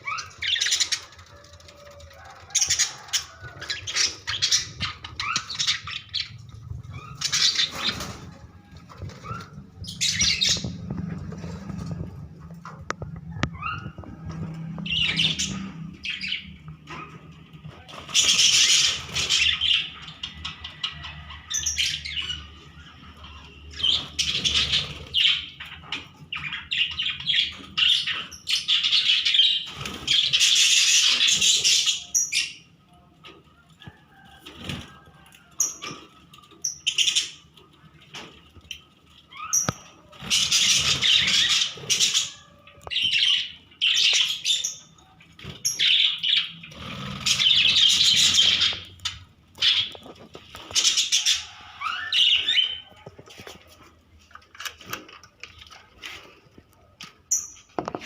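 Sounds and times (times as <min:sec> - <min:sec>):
budgerigars chattering and chirping: 0:00.0 - 0:01.6, 0:02.3 - 0:08.2, 0:09.1 - 0:10.9, 0:14.8 - 0:17.2, 0:18.0 - 0:32.7, 0:39.3 - 0:53.0
wings flapping: 0:07.1 - 0:12.4.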